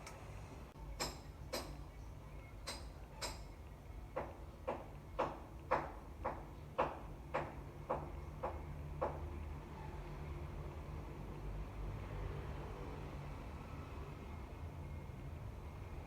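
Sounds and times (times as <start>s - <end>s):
sharp knocks: 4.2s - 9.2s.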